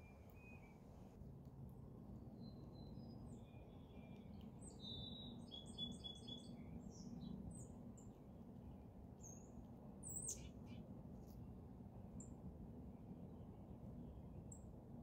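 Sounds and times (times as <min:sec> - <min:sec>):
songbirds chirping: 0:02.2 - 0:10.9.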